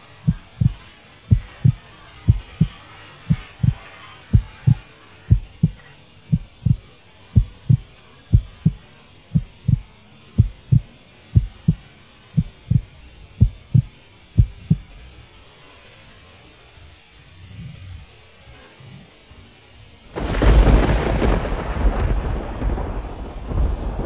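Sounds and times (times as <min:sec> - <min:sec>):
heartbeat thumps: 0:00.2 - 0:11.8, 0:12.4 - 0:14.9.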